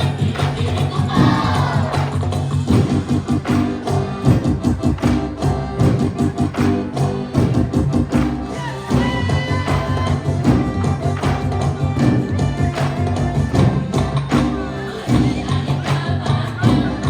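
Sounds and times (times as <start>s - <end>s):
live stage music melody: 0.0s - 17.0s
sharp percussion strikes: 0.0s - 17.0s.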